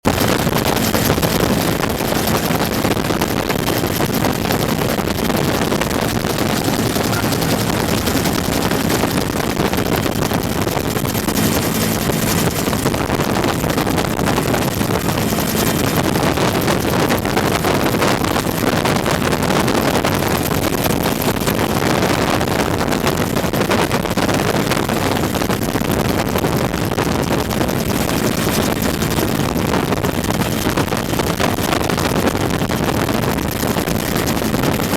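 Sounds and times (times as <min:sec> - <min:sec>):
wind noise on microphone: 0:00.0 - 0:34.9
faint steady hum: 0:00.1 - 0:19.6
helicopter engine and rotor roar: 0:00.4 - 0:19.4, 0:27.7 - 0:29.4.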